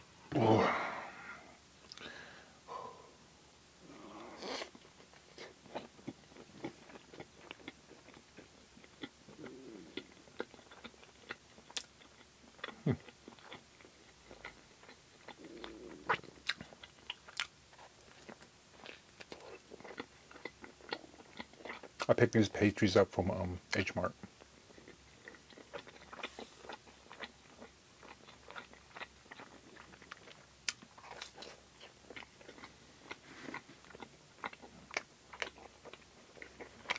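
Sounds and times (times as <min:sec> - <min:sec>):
person chewing fried bread: 0:04.1 - 0:22.1, 0:24.2 - 0:36.9.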